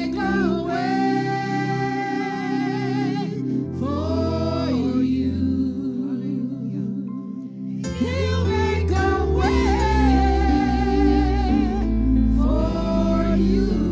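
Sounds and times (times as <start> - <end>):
gospel singing: 0.0 - 13.9.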